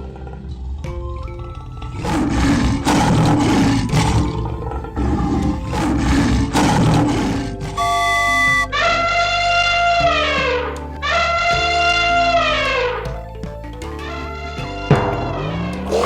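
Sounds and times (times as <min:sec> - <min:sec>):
xylophone-like jingle: 0:07.8 - 0:08.8
lion roaring: 0:15.6 - 0:16.0.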